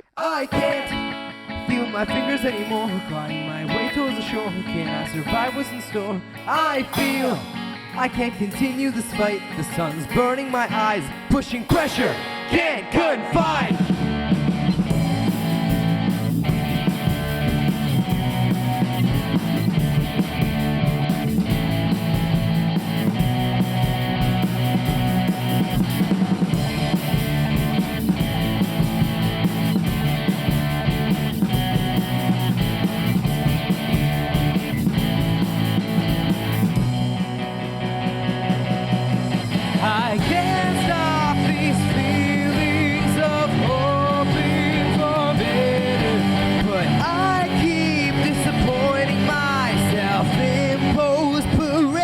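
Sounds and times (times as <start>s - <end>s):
instrumental rock guitar: 0.5s - 52.0s
drum kit beat: 6.8s - 7.8s, 11.4s - 52.0s.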